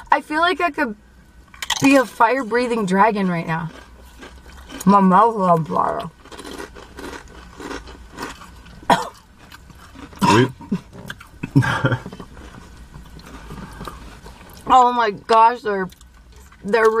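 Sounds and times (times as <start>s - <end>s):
people chewing crunchy chips: 1.5s - 14.8s.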